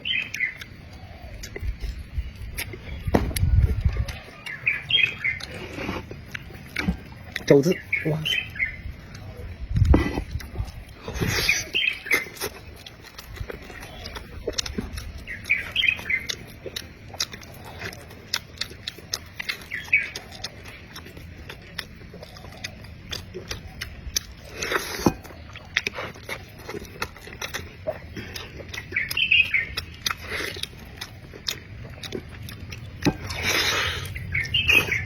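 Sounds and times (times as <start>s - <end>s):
wet chewing and lip-smacking: 0.0s - 35.0s
mouth clicks: 0.1s - 35.0s.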